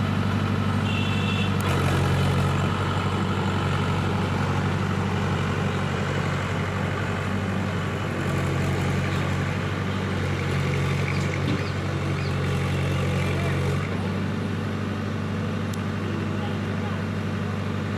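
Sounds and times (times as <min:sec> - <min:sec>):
heavy diesel engine running: 0:00.0 - 0:17.9.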